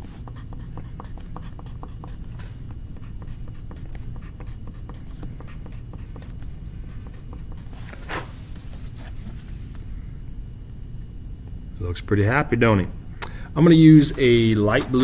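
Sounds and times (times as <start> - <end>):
coloring tool scratching on paper: 0.0 - 8.2.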